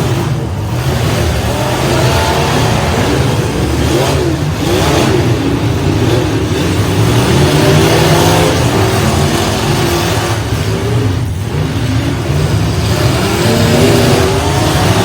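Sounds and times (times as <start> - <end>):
truck engines revving hard: 0.0 - 15.0.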